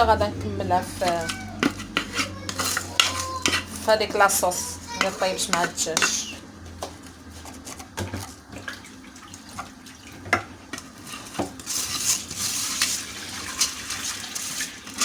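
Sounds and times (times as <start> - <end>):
pot and utensils knocking: 0.0 - 6.4.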